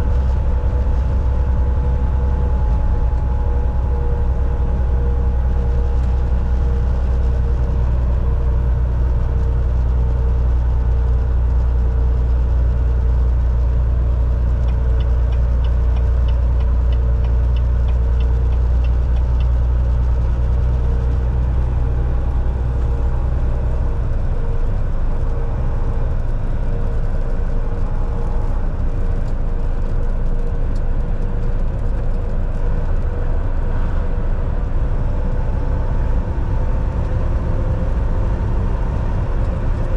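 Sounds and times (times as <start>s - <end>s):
road noise: 0.0s - 39.9s
truck diesel engine droning: 0.0s - 39.9s
light regular ticking: 14.6s - 19.9s.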